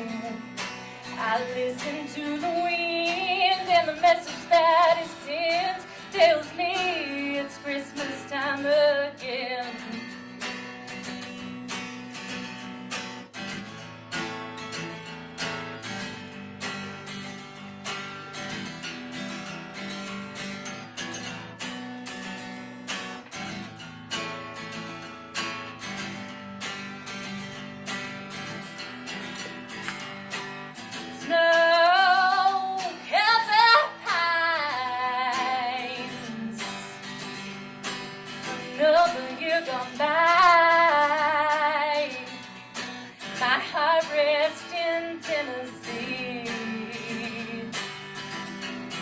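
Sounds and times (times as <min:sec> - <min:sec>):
woman singing wordless notes: 0:00.0 - 0:10.0, 0:31.0 - 0:37.1, 0:38.4 - 0:42.6, 0:43.3 - 0:47.8
acoustic guitar: 0:00.0 - 0:49.0.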